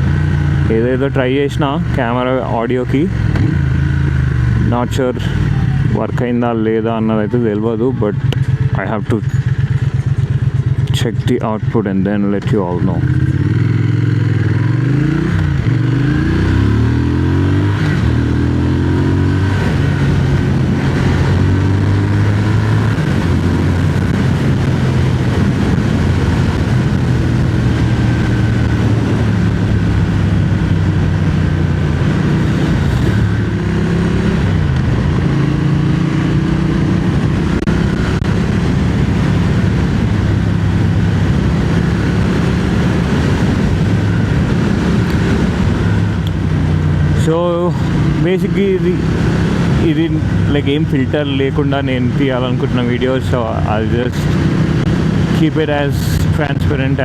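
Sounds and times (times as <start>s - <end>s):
motorcycle engine accelerating: 0.0s - 57.0s
wind rush: 13.0s - 57.0s.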